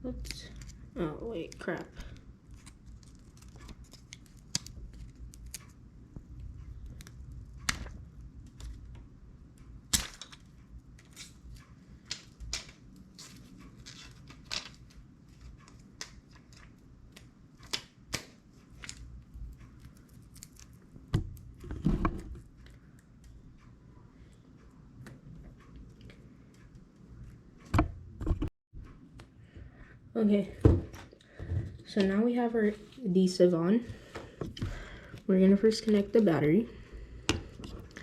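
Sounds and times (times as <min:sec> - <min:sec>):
adhesive strips peeling: 0:02.5 - 0:05.7.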